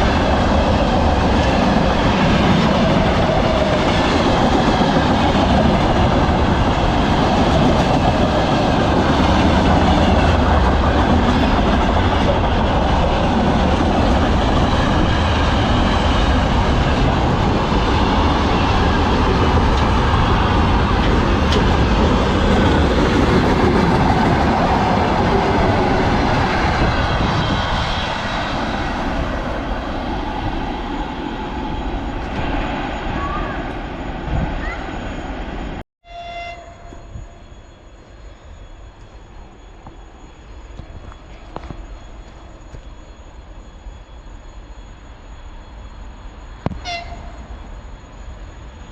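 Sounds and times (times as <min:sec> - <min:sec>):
freight train rolling past: 0:00.0 - 0:48.9.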